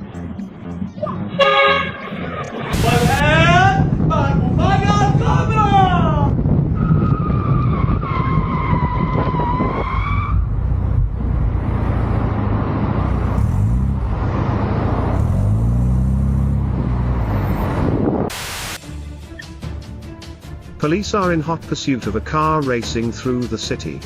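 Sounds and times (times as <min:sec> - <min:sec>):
road and tyre noise: 0:00.0 - 0:19.4
car tyres squealing: 0:06.6 - 0:11.0
car engine revving: 0:08.3 - 0:18.8.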